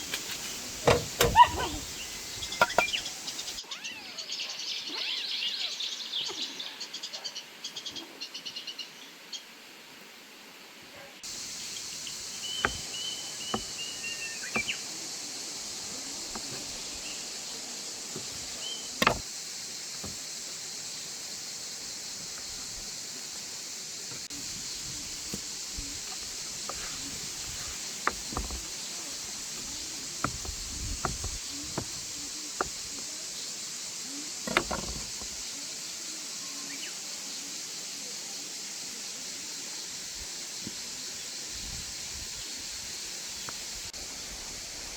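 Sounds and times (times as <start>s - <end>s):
high-pitched hiss: 0.0s - 4.0s, 11.2s - 44.9s
knocks: 12.0s - 14.8s, 18.2s - 19.3s, 26.0s - 28.7s, 29.5s - 33.0s, 34.5s - 35.4s.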